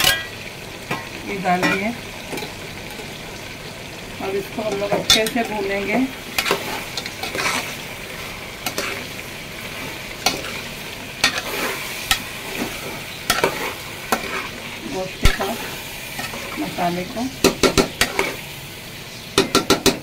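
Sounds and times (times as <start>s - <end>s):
food sizzling in oil: 0.0s - 20.0s
spoon scraping a metal pot: 6.4s - 7.8s, 8.6s - 9.1s, 11.2s - 14.5s.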